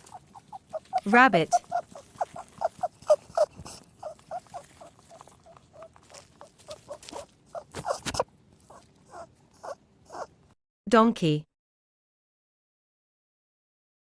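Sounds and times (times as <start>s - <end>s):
rabbit squeaking: 0.0s - 10.3s.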